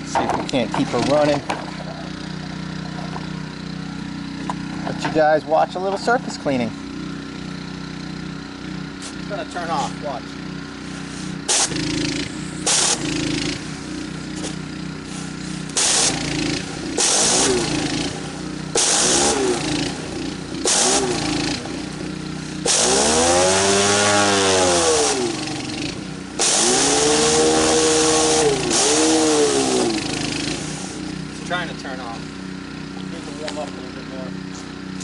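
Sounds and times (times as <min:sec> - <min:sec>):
pressure washer engine running unsteadily: 0:00.0 - 0:35.0.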